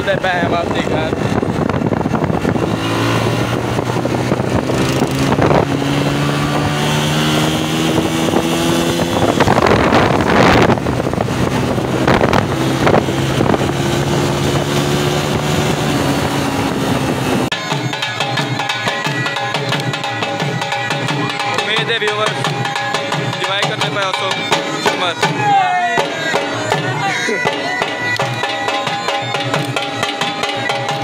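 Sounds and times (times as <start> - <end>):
wind on microphone: 0.0 - 17.6
motorcycle engine running: 0.0 - 25.4.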